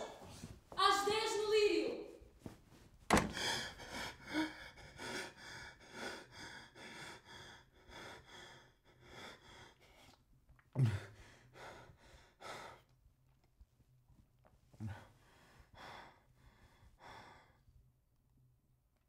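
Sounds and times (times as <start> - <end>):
man breathing hard: 3.2 - 10.2, 10.8 - 12.9, 14.8 - 17.7.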